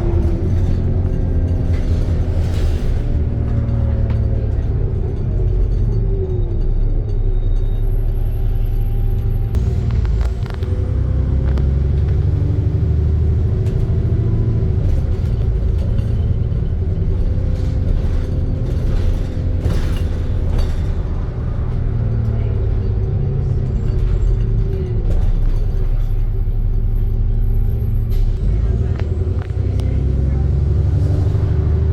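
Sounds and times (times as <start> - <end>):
rattles and clicks: 0.0 - 7.7, 13.3 - 26.4
bus engine rumble with whine: 0.0 - 31.9.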